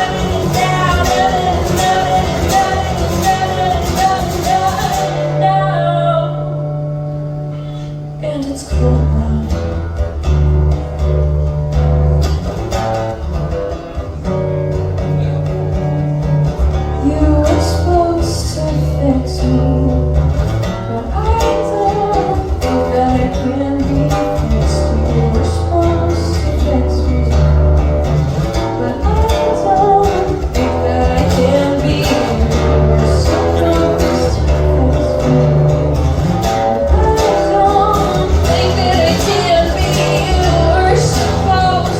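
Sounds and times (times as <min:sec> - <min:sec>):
person singing: 0:00.0 - 0:06.7, 0:20.9 - 0:27.7, 0:28.6 - 0:41.9
bass guitar notes: 0:00.0 - 0:41.9
guitar playing: 0:00.0 - 0:41.9.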